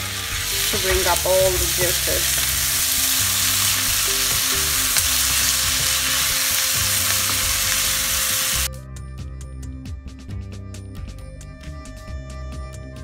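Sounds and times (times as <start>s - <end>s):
vegetables sizzling in frying pan: 0.0s - 8.7s
background music: 0.0s - 13.0s.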